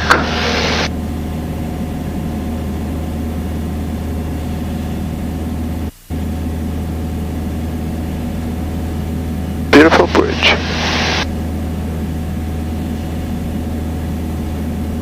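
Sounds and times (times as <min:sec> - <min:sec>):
airplane engine droning: 0:00.0 - 0:15.0.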